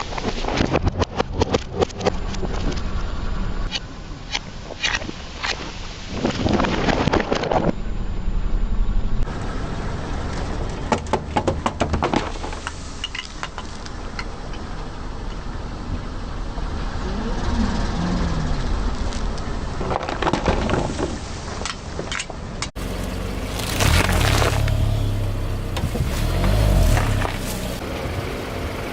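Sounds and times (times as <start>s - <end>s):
car engine rumble: 0.1s - 28.9s
tyres crushing objects: 22.8s - 27.8s.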